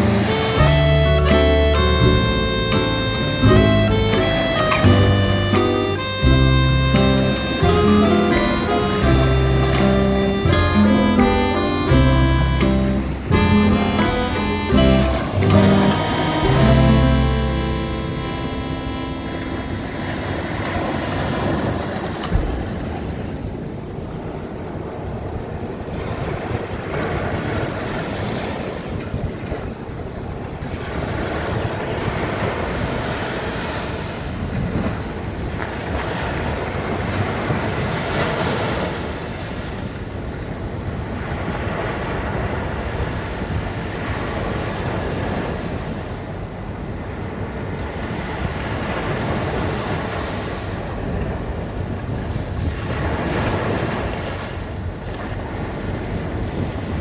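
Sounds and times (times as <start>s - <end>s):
sea waves breaking on shore: 0.0s - 57.0s
brief thump: 22.3s - 22.7s.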